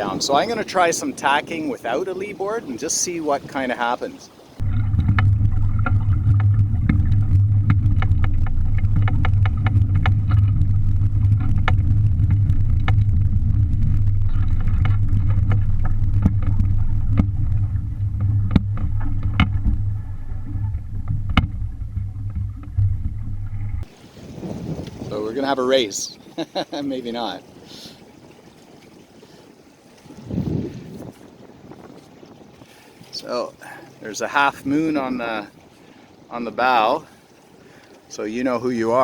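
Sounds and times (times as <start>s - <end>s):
wind rumbling on microphone: 0.0s - 39.0s
boat clicks and knocks: 4.6s - 10.7s, 14.3s - 22.8s.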